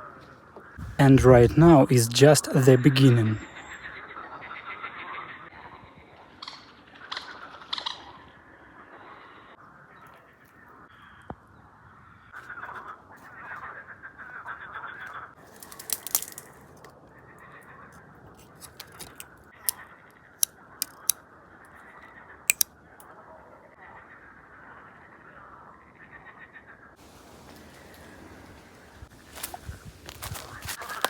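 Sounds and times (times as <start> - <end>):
short sharp clicks: 20.8 - 21.2
birds calling: 27.0 - 31.0.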